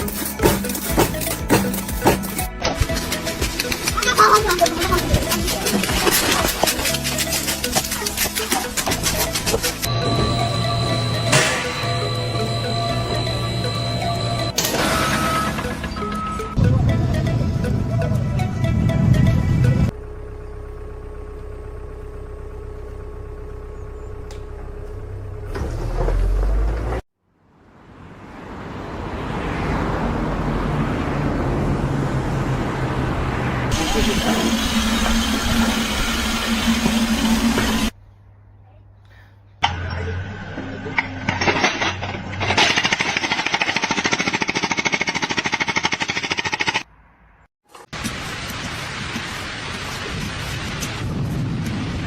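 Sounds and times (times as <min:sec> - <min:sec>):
power tool hammering rapidly: 0:00.4 - 0:14.5, 0:42.5 - 0:46.8
low engine-like hum: 0:03.0 - 0:27.0
power tool humming: 0:04.7 - 0:15.5, 0:33.7 - 0:38.0.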